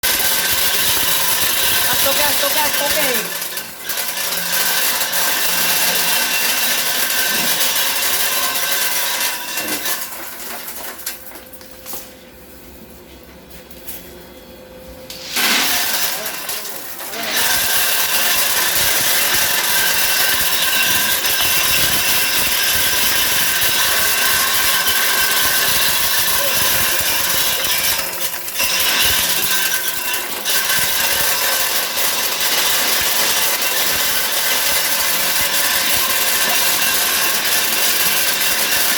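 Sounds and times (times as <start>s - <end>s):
clatter of nuts and shells: 0.0s - 12.0s, 15.3s - 38.9s.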